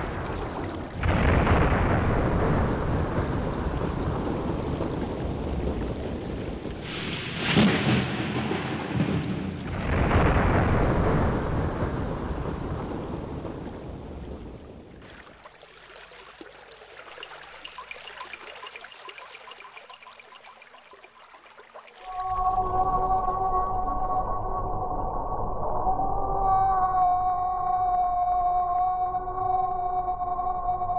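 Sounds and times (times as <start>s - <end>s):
loud rumbling rush: 0.0s - 14.7s.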